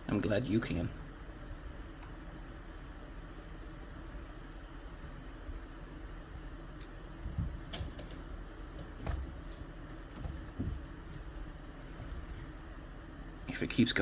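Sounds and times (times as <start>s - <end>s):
low background hum: 0.0s - 14.0s
soft thumps: 7.2s - 12.6s.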